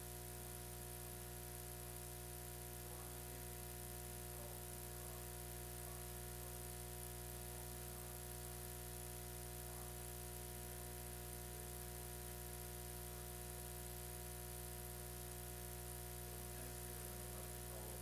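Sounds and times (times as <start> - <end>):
electrical hum and buzz: 0.0 - 18.0.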